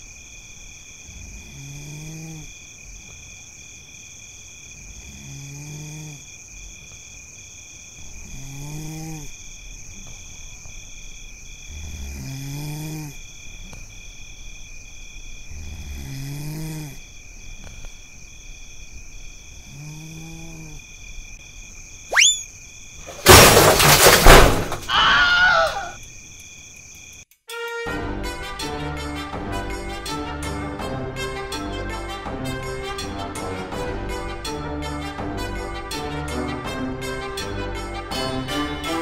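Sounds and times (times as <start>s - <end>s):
crickets chirping: 0.0s - 27.4s
person snoring: 1.1s - 2.6s, 5.0s - 6.2s, 8.2s - 9.4s, 11.7s - 13.2s, 15.5s - 17.0s, 19.6s - 20.8s
rising whistle: 22.1s - 22.5s.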